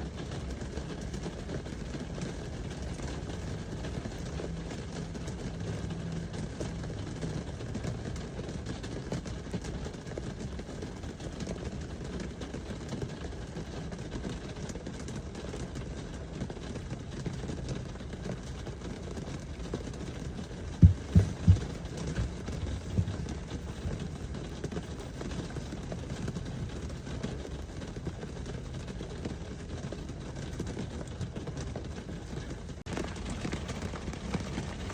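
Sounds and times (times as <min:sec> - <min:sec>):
low thumps: 0:20.7 - 0:23.4.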